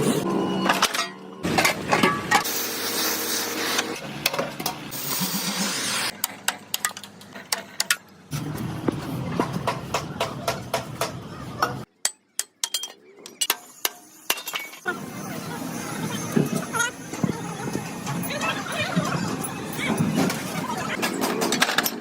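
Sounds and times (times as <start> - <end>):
machine hum and hiss: 1.5 - 6.1.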